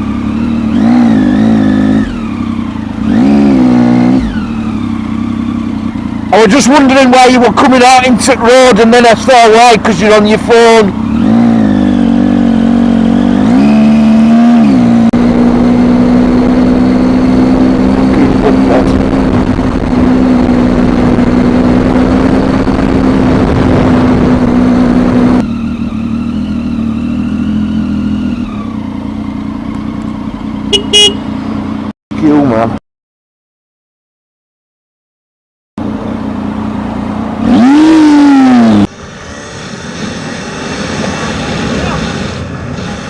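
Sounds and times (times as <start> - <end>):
motorcycle engine running: 0.0 - 32.7, 35.8 - 39.1
steady rushing noise: 38.8 - 43.0.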